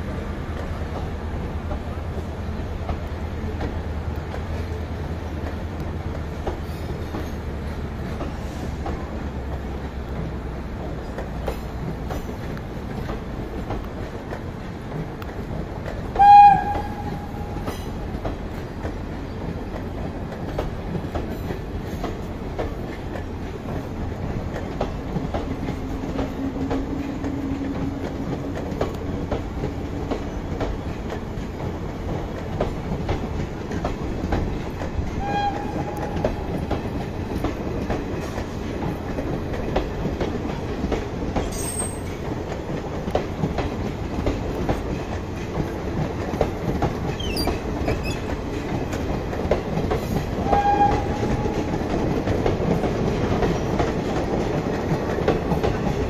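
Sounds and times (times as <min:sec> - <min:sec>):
train wheels clicking over rail joints: 0:00.0 - 0:56.0
high-pitched horn blast: 0:16.2 - 0:17.6, 0:35.2 - 0:36.3.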